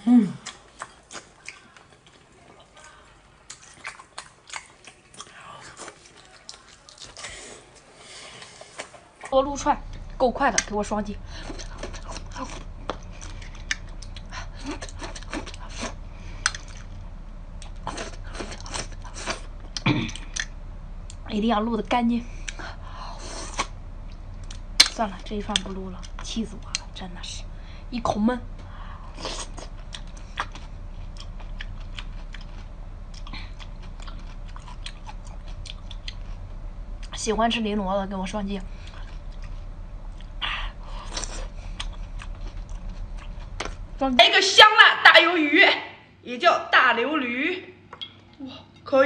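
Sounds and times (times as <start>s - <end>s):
chewing and mouth smacks: 0.4s - 7.4s, 11.5s - 17.0s, 29.2s - 37.1s, 41.0s - 43.8s.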